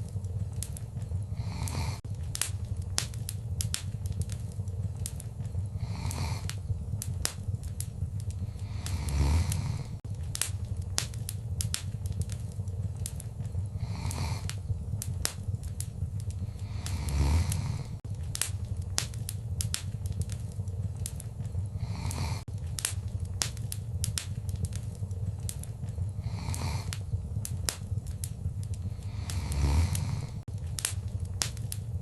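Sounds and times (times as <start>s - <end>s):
hissing flare-ups: 0.0s - 32.0s
low rumble of fire: 0.0s - 32.0s
wood fire crackling and popping: 0.0s - 32.0s.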